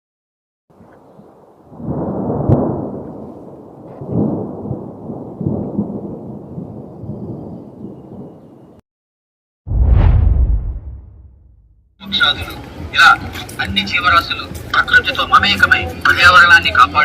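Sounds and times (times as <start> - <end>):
low rumbling noise: 9.7 - 11.8.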